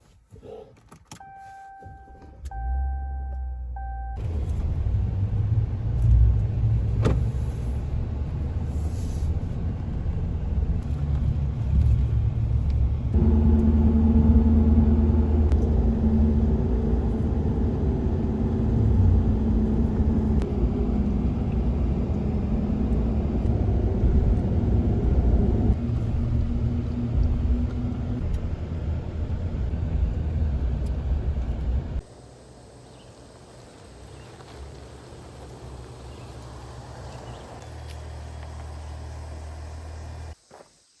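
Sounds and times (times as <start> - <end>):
vehicle engine rumble: 1.1 - 40.5
pitched hums: 10.1 - 40.4.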